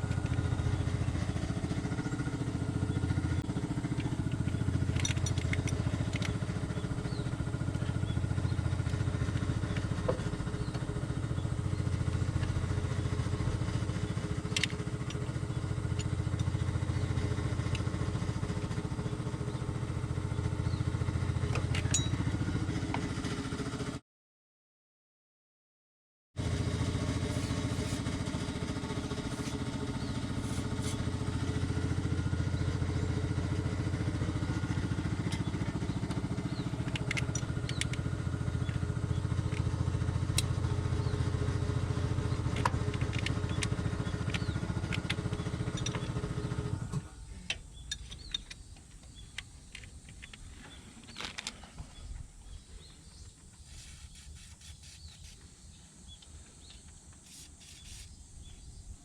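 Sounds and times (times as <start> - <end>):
car engine idling: 0.0 - 22.9, 26.4 - 51.4.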